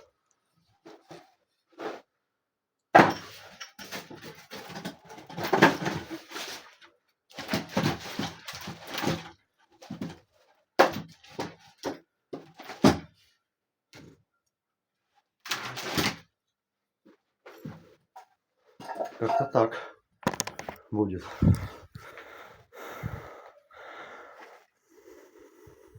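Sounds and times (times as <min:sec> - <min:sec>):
knocks and thuds from table: 0:20.2 - 0:20.8.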